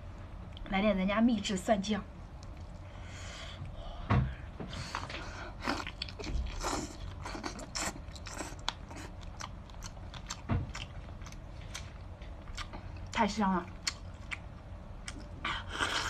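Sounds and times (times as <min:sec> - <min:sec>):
wet chewing and lip smacking: 0:05.7 - 0:16.0.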